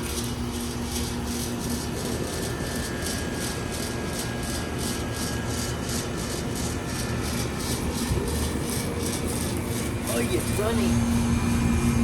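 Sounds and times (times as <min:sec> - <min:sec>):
heat pump fan and compressor: 0:00.0 - 0:12.0.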